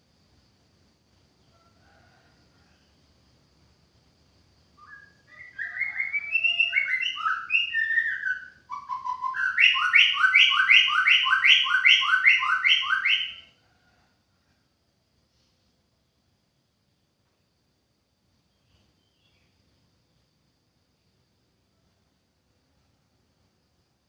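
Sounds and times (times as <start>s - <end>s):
songbird singing: 4.4s - 13.6s, 18.4s - 20.4s.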